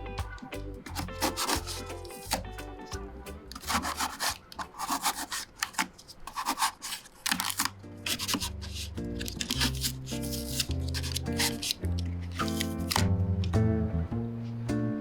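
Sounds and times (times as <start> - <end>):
background music: 0.0 - 5.2, 7.4 - 15.0
scraping and rubbing strokes: 0.9 - 2.5, 3.5 - 13.0.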